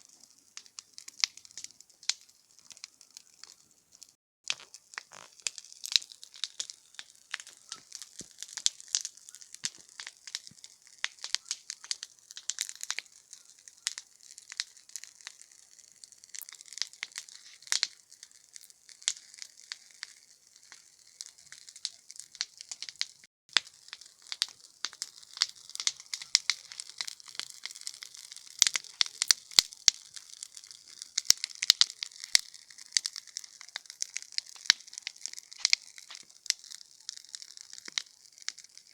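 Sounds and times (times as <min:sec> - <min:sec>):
campfire crackling: 0:00.0 - 0:38.9
fire hiss: 0:23.6 - 0:38.9.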